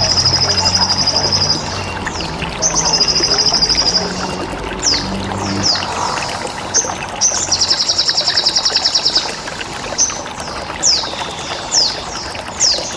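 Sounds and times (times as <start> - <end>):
running water: 0.0 - 12.9
songbird chirps: 0.0 - 12.9.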